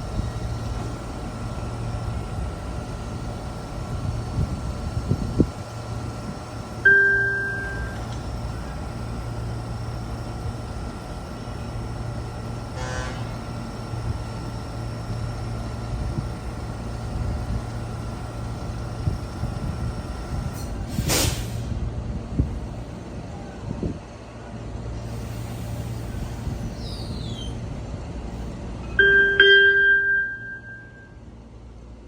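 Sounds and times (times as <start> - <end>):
train humming: 0.0 - 32.0
ringing ding: 6.9 - 7.9, 29.0 - 31.2.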